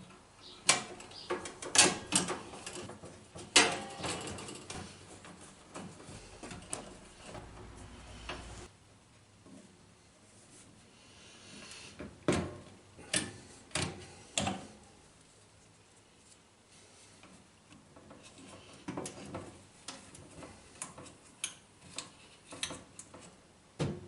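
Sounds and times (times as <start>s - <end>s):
sharp knocks of parts: 0.6s - 4.9s.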